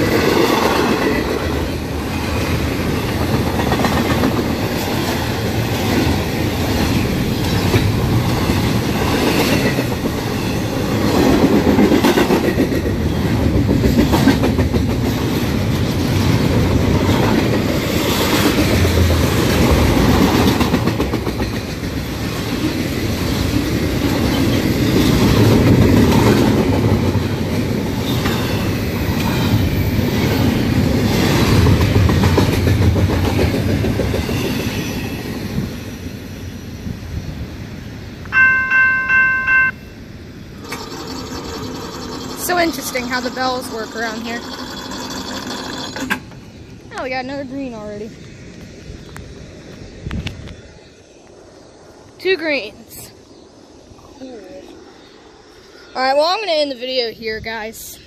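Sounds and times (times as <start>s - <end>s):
train wheels clicking over rail joints: 0.0s - 35.7s, 40.5s - 47.1s
train rumble: 0.0s - 58.0s.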